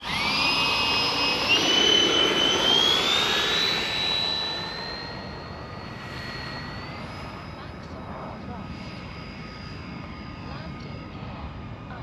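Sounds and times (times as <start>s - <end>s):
electric ducted fans whining: 0.0s - 8.6s.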